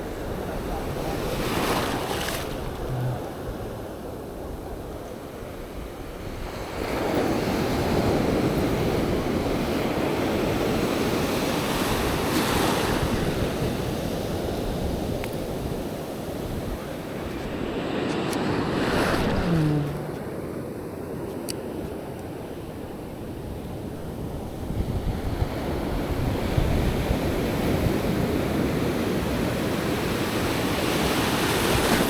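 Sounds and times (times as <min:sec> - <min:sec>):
ocean surf breaking: 0:00.0 - 0:21.2
wind buffeting microphone: 0:00.0 - 0:32.0.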